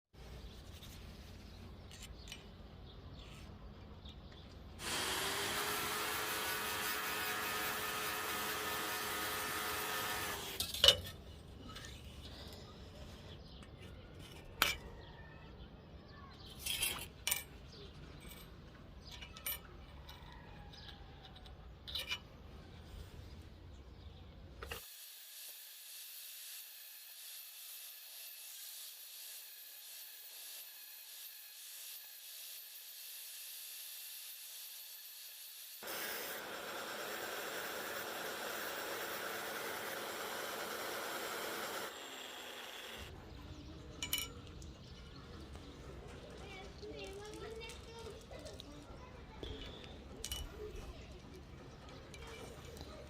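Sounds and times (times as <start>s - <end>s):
power tool whining: 4.8s - 10.8s, 24.6s - 43.1s
metallic clinks and knocks: 16.6s - 22.4s, 43.9s - 44.6s, 49.5s - 53.0s.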